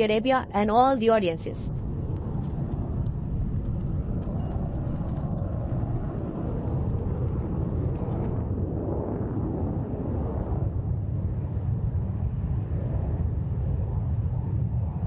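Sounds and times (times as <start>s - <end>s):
jet engine rumble: 0.0s - 15.0s.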